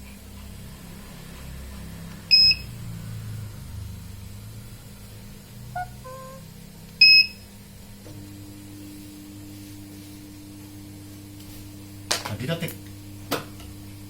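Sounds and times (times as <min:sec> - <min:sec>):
low steady hum: 0:03.9 - 0:12.1
high-pitched electronic beeps: 0:05.8 - 0:07.3.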